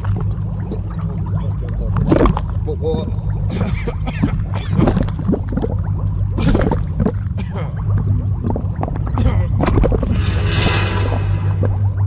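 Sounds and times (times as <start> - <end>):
steady low hum: 0.0 - 12.0
wet squelching and gurgling: 3.5 - 5.8.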